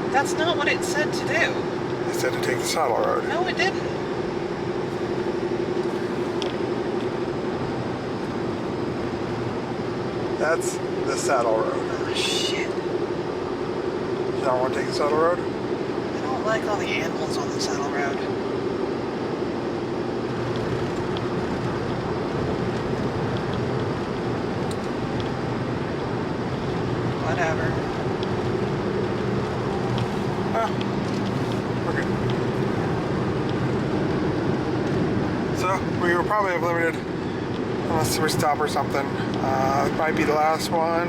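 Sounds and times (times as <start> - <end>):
car road noise and engine hum: 0.0 - 41.0
constant droning tone: 0.0 - 41.0.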